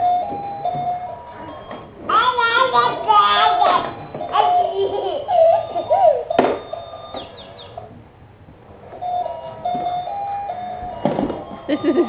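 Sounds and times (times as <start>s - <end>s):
toddler making high voice sounds: 2.1s - 6.3s.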